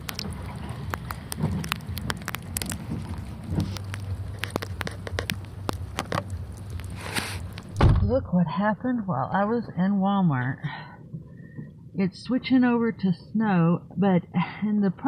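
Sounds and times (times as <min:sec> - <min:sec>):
sleet ticking on hard surfaces: 0:00.0 - 0:07.7
low steady hum: 0:00.0 - 0:15.0.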